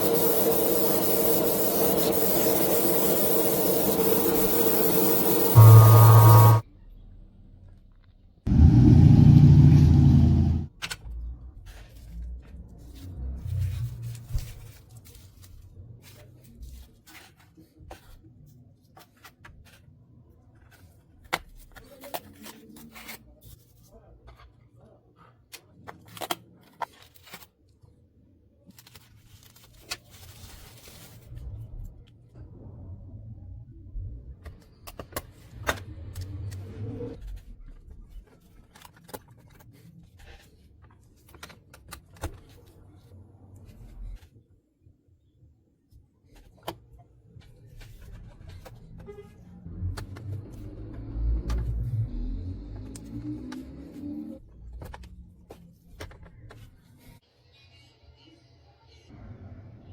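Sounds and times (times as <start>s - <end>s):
low rumble: 8.5s - 10.7s.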